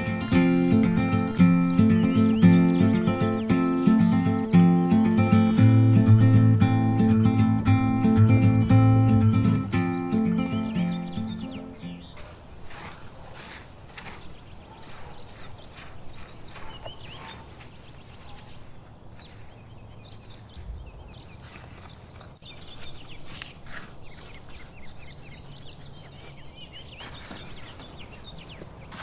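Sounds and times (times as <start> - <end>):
small birds chirping: 0.0 - 12.2, 19.2 - 29.0
leaves rustling: 0.0 - 14.3.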